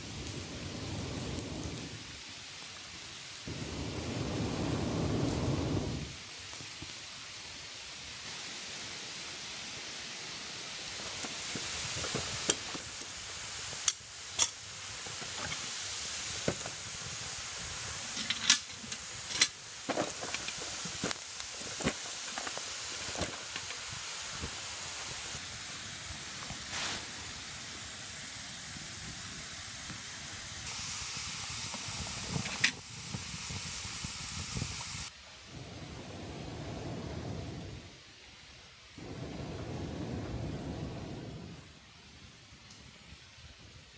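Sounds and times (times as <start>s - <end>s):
fire crackles and pops: 0.0s - 8.9s, 10.8s - 37.9s, 39.0s - 43.2s
campfire hissing: 0.0s - 43.9s.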